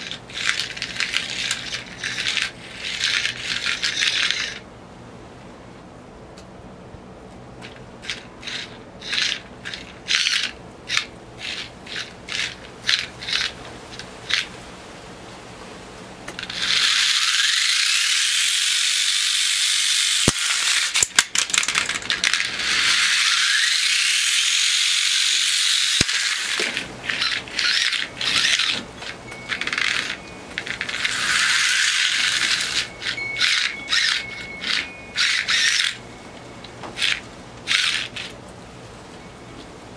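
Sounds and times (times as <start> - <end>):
robot weapon high-pitched whirring: 0.0 - 4.6, 16.4 - 21.2, 21.8 - 36.0, 37.0 - 38.3.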